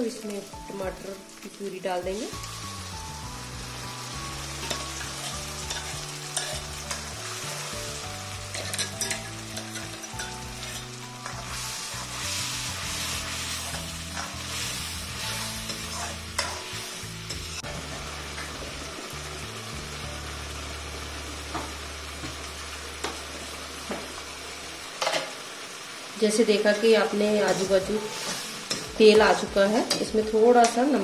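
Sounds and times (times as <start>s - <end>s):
tomato puree sizzling in hot oil: 0.0s - 31.0s
steel spoon scraping a pan: 4.6s - 7.2s, 8.5s - 17.5s.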